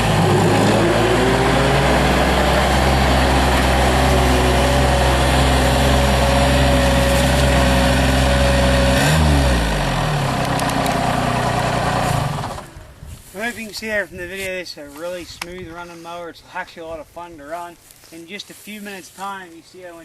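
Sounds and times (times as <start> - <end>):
hydraulic brush cutter whine: 0.0 - 12.8
diesel engine running: 0.0 - 13.0.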